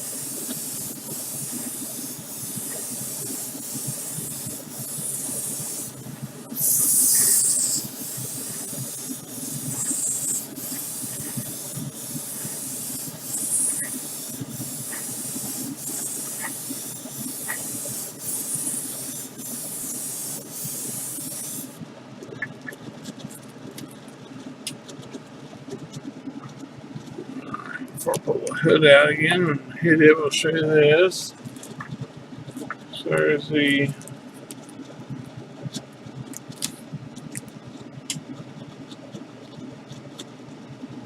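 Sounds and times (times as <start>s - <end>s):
spray hiss: 0.0s - 21.8s.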